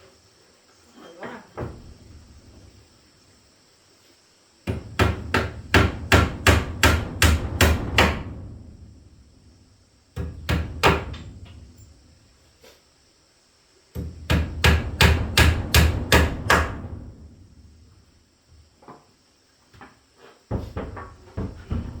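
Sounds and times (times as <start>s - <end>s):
hammer striking wood: 4.7s - 8.3s, 10.2s - 11.2s, 14.0s - 16.8s.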